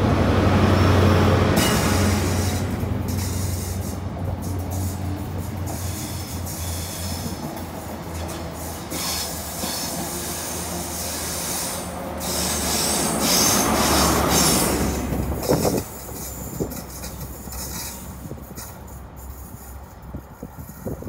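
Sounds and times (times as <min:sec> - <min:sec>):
rail noise: 0:00.0 - 0:21.0
train engine hum: 0:00.0 - 0:21.0
train wheel squeal: 0:01.6 - 0:21.0.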